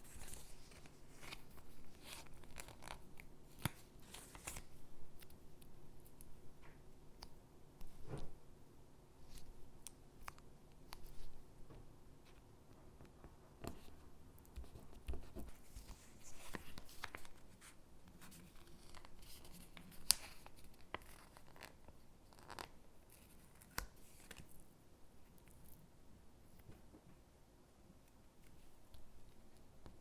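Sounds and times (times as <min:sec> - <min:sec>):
paper rustling and scratching: 0:00.0 - 0:04.7.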